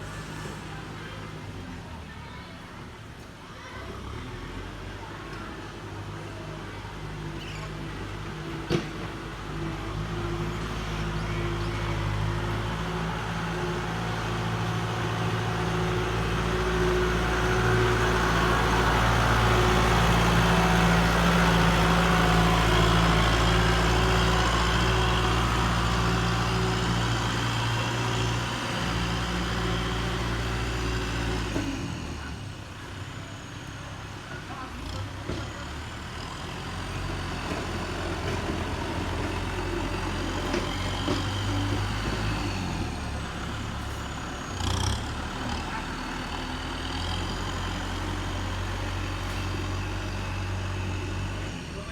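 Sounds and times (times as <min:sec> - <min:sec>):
tractor diesel engine running: 0:05.8 - 0:51.9.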